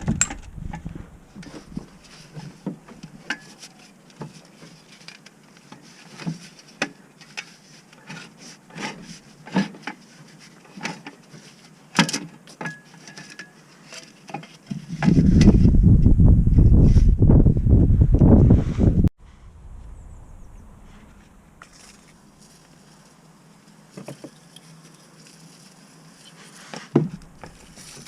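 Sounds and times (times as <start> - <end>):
tools clicking and clinking: 0.0 - 0.5
loud low rumble: 15.8 - 21.6.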